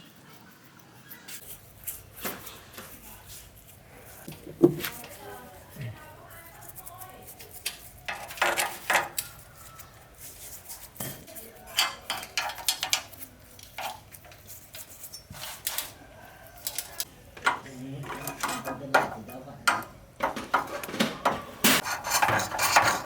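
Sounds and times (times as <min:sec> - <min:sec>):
metal tools clinking and tapping: 0:11.0 - 0:16.0, 0:16.6 - 0:21.5.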